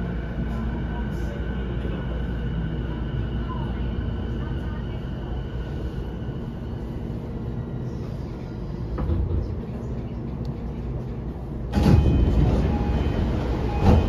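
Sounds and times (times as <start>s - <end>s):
train interior hum: 0.0s - 14.0s
train doors opening with ringing tones: 8.5s - 14.0s.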